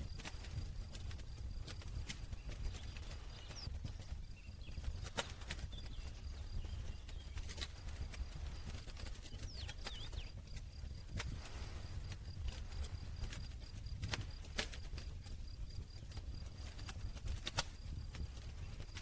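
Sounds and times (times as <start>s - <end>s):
campfire crackling: 0.0s - 19.0s
faint high bird chirps: 2.1s - 10.6s.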